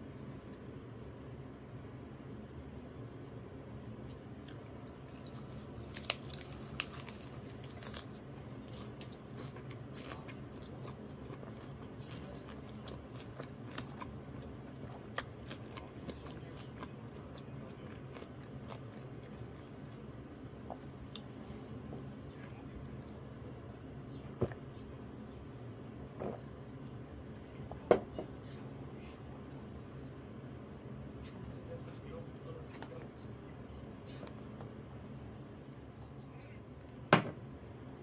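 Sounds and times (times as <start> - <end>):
faint low hum: 0.0 - 38.0
wet crunchy chewing: 4.4 - 20.0.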